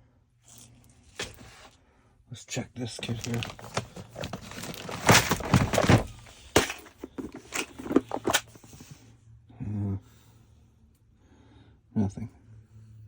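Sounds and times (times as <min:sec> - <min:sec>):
lock parts clicking and rattling: 0:03.0 - 0:08.8.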